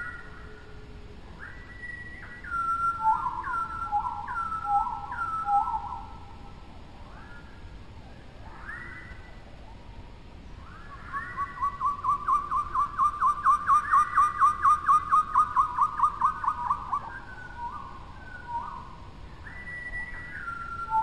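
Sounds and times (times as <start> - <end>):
longer bird whistles: 1.4 - 6.1, 8.5 - 9.4, 10.6 - 21.0
bird whistled downslurred notes: 19.4 - 21.0.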